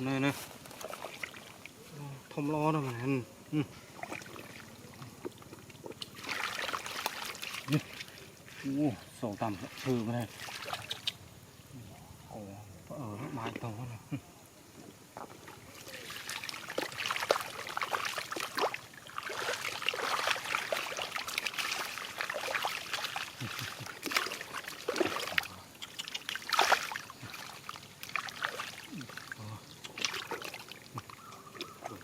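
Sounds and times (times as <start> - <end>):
shallow water splashing and sloshing: 0.2 - 1.9, 3.8 - 11.4, 15.1 - 32.0.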